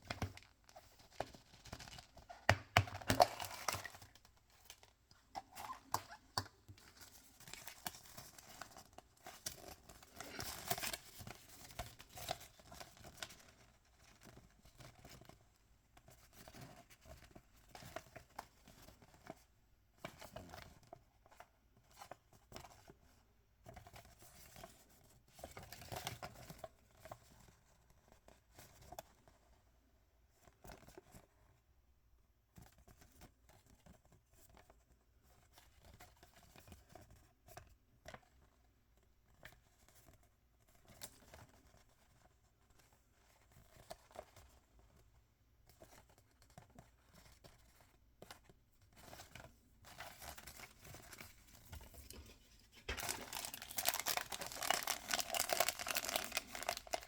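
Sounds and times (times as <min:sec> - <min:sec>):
small clicks and rustles: 0:00.0 - 0:57.0
packaging crinkling and tearing: 0:49.9 - 0:57.0.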